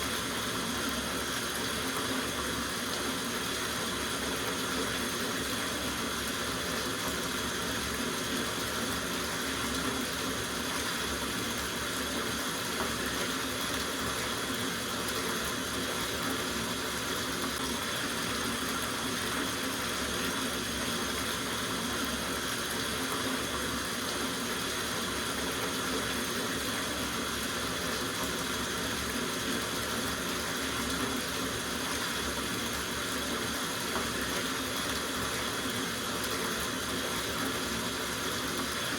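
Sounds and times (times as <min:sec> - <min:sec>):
tap water running into bathtub: 0:00.0 - 0:38.9.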